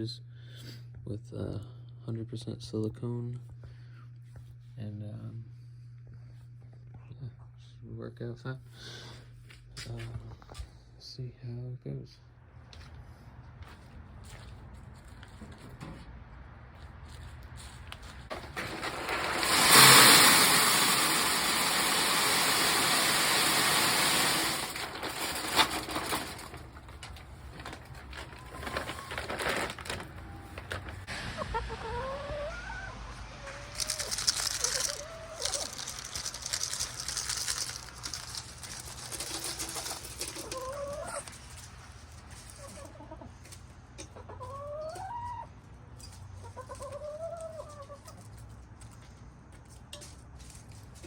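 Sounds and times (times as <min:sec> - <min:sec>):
grain pouring into metal feeder: 0:18.3 - 0:27.0, 0:33.8 - 0:41.2
chickens clucking: 0:30.3 - 0:37.6, 0:39.1 - 0:41.6, 0:42.3 - 0:48.6.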